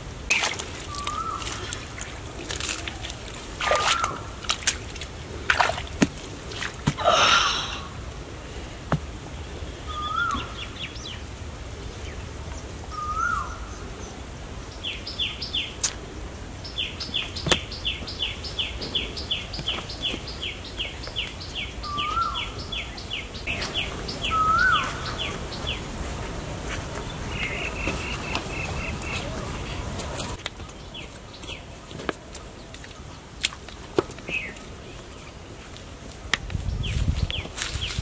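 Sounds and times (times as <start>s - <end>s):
bird whistling: 9.9s - 10.6s, 12.9s - 13.6s, 23.5s - 25.3s
bird chatter: 16.6s - 25.9s, 27.0s - 31.7s.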